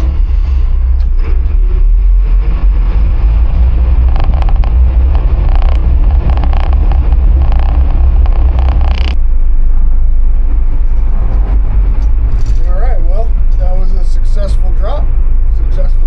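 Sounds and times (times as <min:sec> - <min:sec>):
boat engine rumbling: 0:00.0 - 0:16.0
irregular rattling and clatter: 0:10.7 - 0:15.6.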